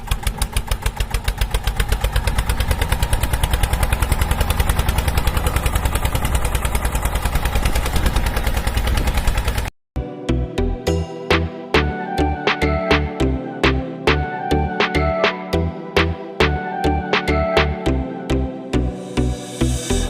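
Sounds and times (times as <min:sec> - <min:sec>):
small engine chugging: 0:00.0 - 0:09.7.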